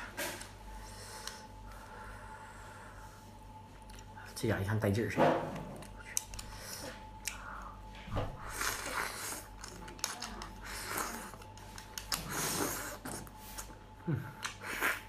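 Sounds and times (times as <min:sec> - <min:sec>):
person chewing: 0:08.4 - 0:15.0.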